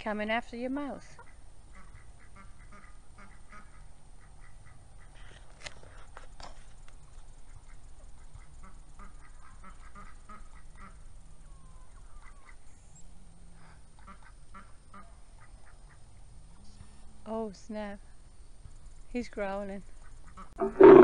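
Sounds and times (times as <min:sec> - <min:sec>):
ducks quacking: 0:01.2 - 0:05.3, 0:08.3 - 0:11.0, 0:20.3 - 0:21.0.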